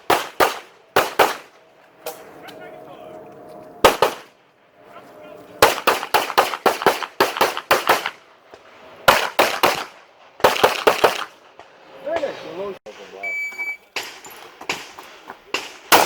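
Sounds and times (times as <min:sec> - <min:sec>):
pistol shots in rapid strings: 0:00.1 - 0:01.5, 0:03.8 - 0:04.3, 0:05.6 - 0:08.2, 0:09.1 - 0:11.4.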